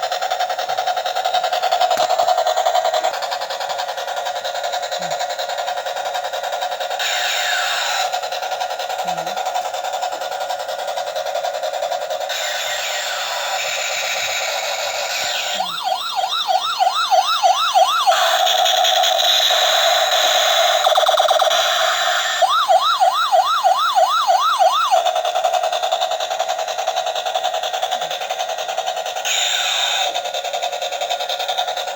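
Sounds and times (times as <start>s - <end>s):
toy buzzing tone: 6.9s - 9.7s, 12.3s - 22.6s, 29.2s - 30.7s
toy police siren wailing: 6.9s - 9.7s, 12.3s - 28.5s, 29.2s - 31.9s.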